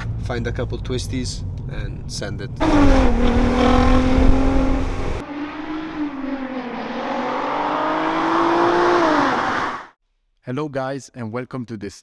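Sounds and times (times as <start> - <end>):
car engine accelerating hard: 2.6 - 9.9.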